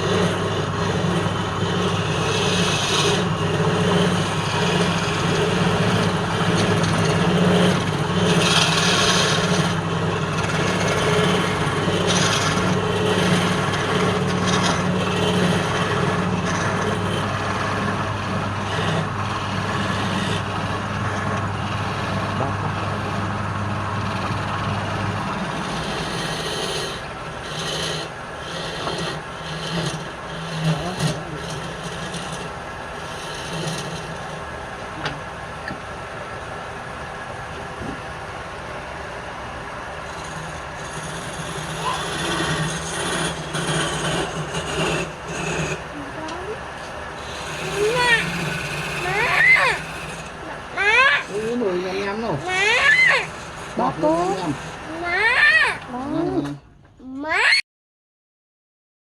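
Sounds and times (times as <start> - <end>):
turning tool scraping wood: 0.0 - 35.9, 38.7 - 56.0
wood lathe motor hum: 0.0 - 56.6.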